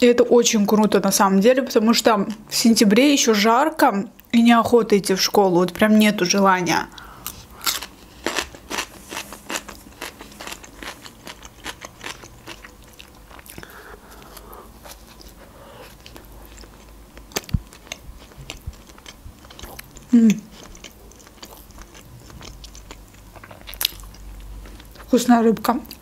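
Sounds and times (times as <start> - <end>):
chewing crunchy cracker: 7.0 - 25.1.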